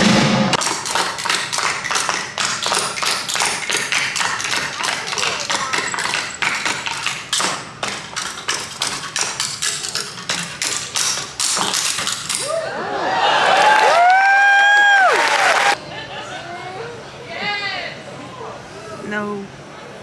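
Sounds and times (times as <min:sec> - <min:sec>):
rapid tapping and knocking: 0:00.6 - 0:12.4.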